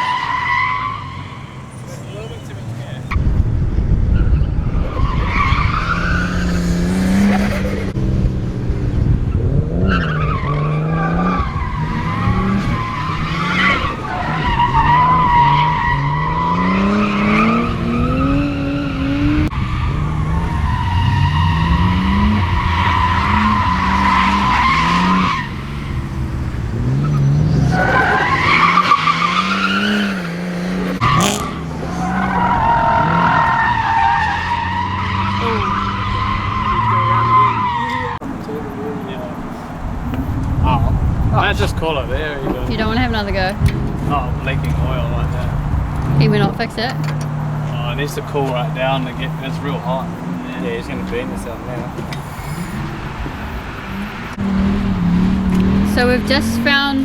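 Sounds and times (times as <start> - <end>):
tyres squealing: 0.0 - 3.2, 9.9 - 57.0
car engine revving: 0.0 - 57.0.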